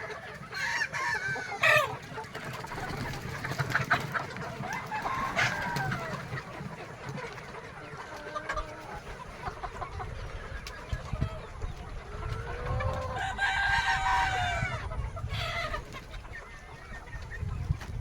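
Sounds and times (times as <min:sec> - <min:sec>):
chickens clucking: 0:00.0 - 0:18.0
rooster crowing: 0:13.1 - 0:14.8.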